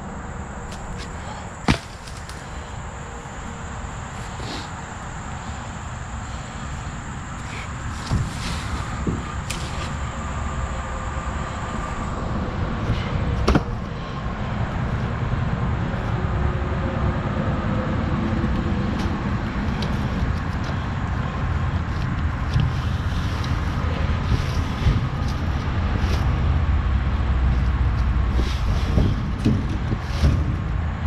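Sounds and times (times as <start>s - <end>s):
sharp knocks and clanks: 13.4s - 13.8s.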